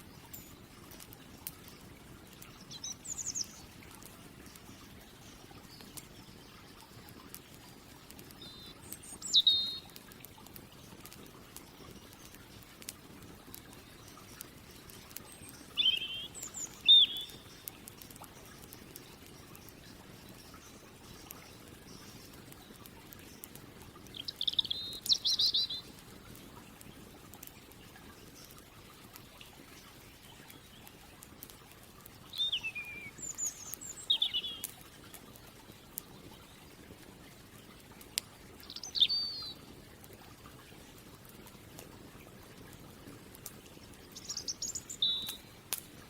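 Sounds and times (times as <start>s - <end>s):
campfire crackling: 0.0s - 46.0s
songbird singing: 2.5s - 7.0s, 8.4s - 10.0s, 13.7s - 26.0s, 32.3s - 36.6s, 38.6s - 39.7s, 44.1s - 45.5s
bird chirping: 2.7s - 3.6s, 8.4s - 9.9s, 15.3s - 17.7s, 24.1s - 25.9s, 32.3s - 34.7s, 38.6s - 39.6s, 44.2s - 45.4s.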